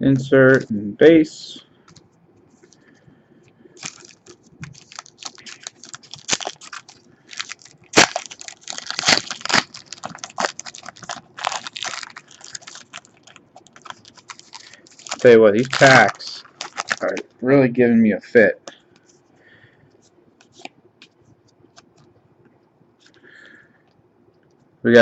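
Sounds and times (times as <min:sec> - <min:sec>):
foil wrapper crinkling and tearing: 0:03.8 - 0:17.2.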